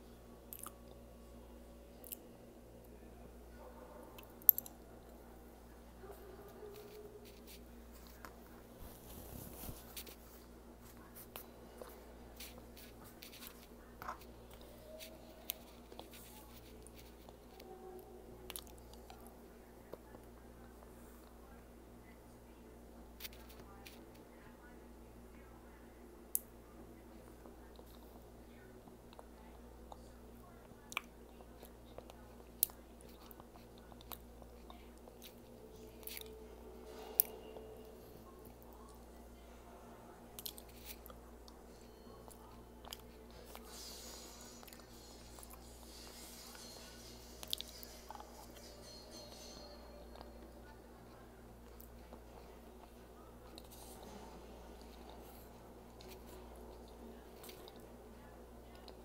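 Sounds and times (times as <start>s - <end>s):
low steady hum: 0.0s - 59.0s
person chewing food: 0.5s - 1.0s, 30.9s - 36.3s, 40.4s - 41.6s, 42.2s - 46.7s, 51.6s - 54.1s.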